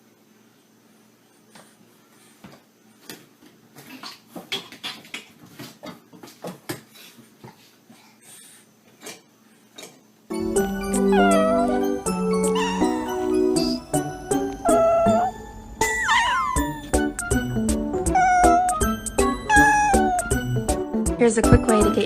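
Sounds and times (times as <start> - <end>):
music: 10.3 - 22.0.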